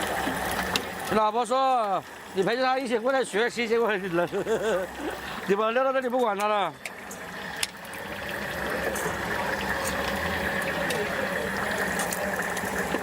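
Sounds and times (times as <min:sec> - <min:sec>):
food deep-frying in oil: 0:00.0 - 0:13.0
oil crackles: 0:07.2 - 0:13.0.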